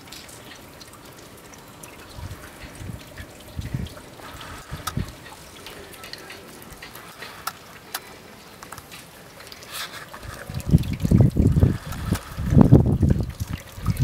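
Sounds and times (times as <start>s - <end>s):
meltwater trickling and dripping: 0.0s - 14.0s
sharp drip ticks: 0.0s - 14.0s
wind buffeting microphone: 2.0s - 7.2s, 10.2s - 14.0s.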